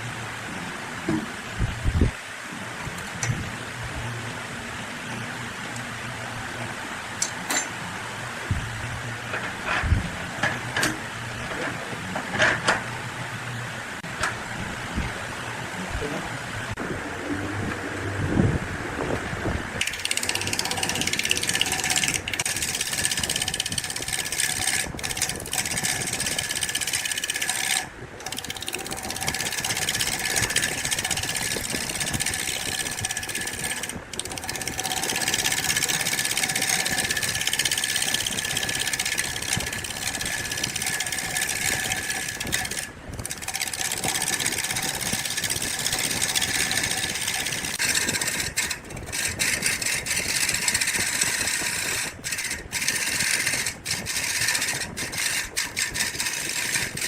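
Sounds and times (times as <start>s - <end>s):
power tool motor running: 19.8s - 57.0s.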